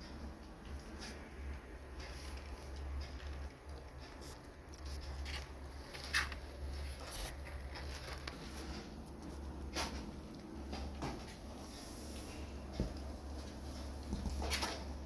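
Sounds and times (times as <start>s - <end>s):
kittens rustling in bedding: 5.0s - 15.0s.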